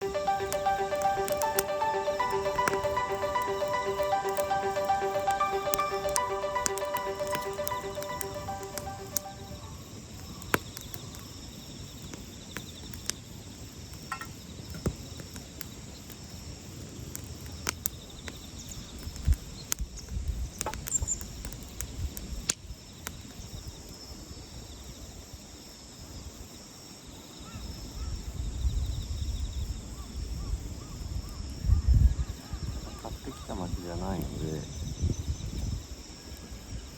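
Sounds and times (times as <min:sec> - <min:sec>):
campfire crackling: 0:00.0 - 0:23.3, 0:32.9 - 0:34.8.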